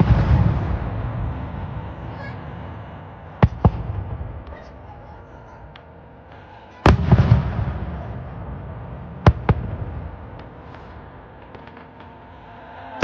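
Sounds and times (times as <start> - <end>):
sharp fireworks bangs: 0.0 - 4.8, 6.8 - 12.3
fireworks booming with echo: 0.0 - 13.0.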